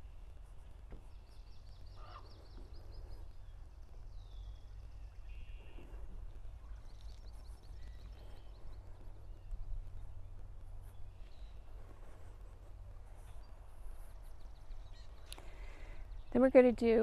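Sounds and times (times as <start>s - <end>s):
birds trilling: 1.8s - 3.3s.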